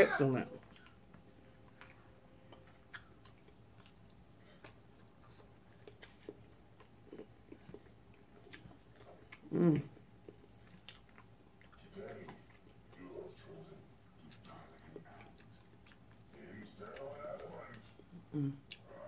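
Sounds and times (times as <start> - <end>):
person chewing: 0.2 - 19.0
person humming: 9.5 - 9.9, 18.3 - 18.6.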